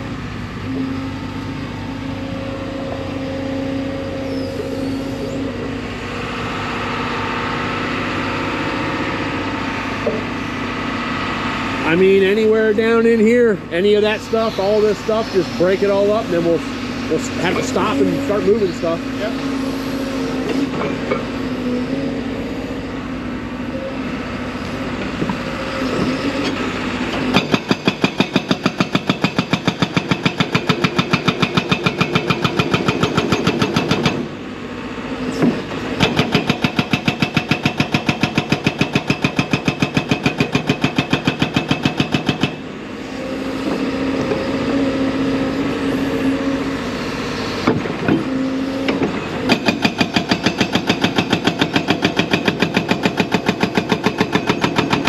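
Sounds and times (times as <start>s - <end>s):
diesel engine running: 0.0s - 55.0s
hydraulic breaker hammering rock: 11.8s - 22.0s, 24.9s - 34.4s, 35.3s - 55.0s.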